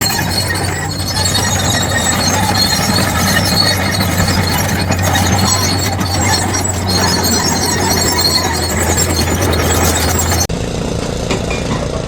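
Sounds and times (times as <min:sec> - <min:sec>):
heavy machinery engine humming: 0:00.0 - 0:12.0.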